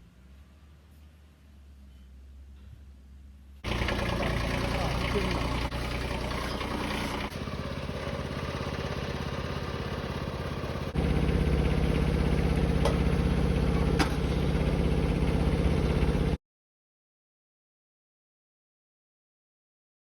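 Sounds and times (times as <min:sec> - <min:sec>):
engine running: 0:03.6 - 0:16.4.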